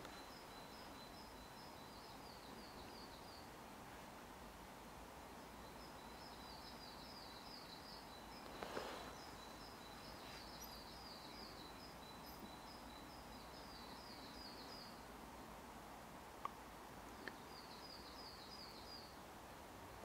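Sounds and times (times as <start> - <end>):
brief rustle: 8.5 - 9.2.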